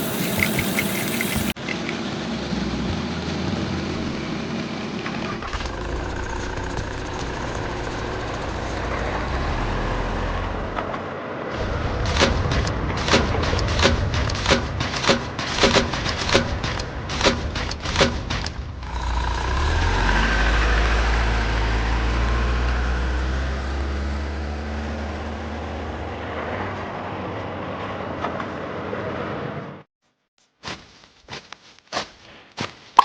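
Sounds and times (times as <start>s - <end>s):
heavy vehicle engine rumbling: 0.0s - 26.4s
rapid clatter of knocks: 12.0s - 18.6s.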